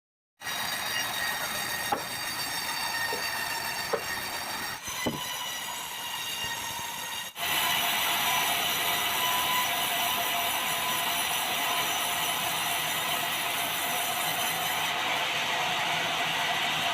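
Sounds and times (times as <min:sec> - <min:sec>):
sawmill saw whining: 0:00.4 - 0:16.9
sharp knocks: 0:01.8 - 0:02.2, 0:03.1 - 0:03.3, 0:03.9 - 0:04.2, 0:05.0 - 0:05.3.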